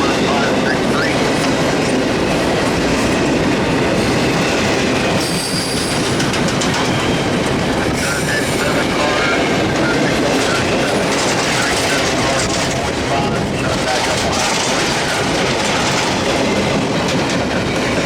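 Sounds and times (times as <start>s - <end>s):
freight train cars rolling: 0.0s - 18.0s
high wheel squeals: 5.2s - 6.2s.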